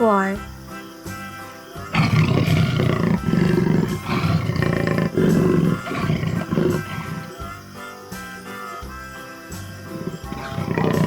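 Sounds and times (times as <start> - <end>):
jaguar roaring: 1.9 - 7.6, 9.9 - 11.0.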